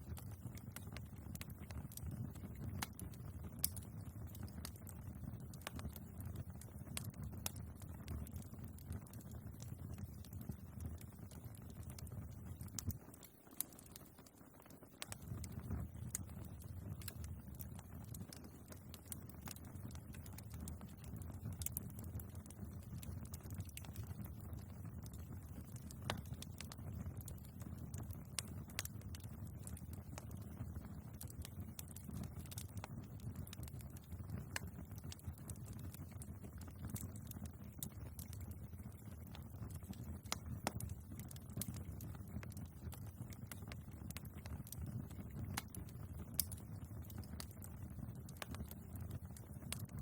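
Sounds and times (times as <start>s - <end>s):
logs crackling and popping: 0.0s - 50.0s
low rumble of flames: 0.0s - 50.0s.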